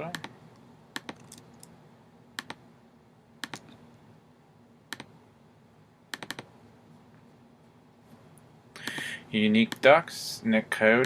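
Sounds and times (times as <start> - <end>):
computer keyboard clicks: 1.0 - 1.4, 3.4 - 3.7, 6.1 - 6.5.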